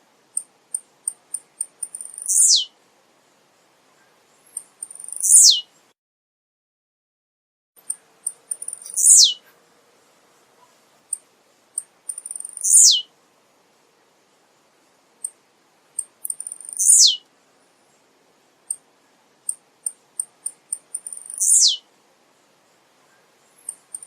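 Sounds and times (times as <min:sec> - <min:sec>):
bird singing high ticks: 0:00.3 - 0:02.7, 0:04.0 - 0:05.7, 0:07.8 - 0:09.4, 0:11.1 - 0:13.0, 0:15.2 - 0:15.4, 0:16.0 - 0:17.3, 0:18.6 - 0:21.8, 0:23.1 - 0:24.0.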